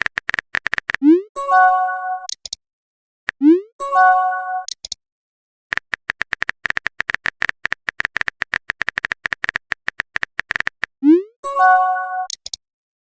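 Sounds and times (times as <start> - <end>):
phone keyboard key clicks: 0.0 - 1.0, 5.7 - 10.9
message chime: 1.2 - 2.3, 3.6 - 4.7, 11.1 - 12.3.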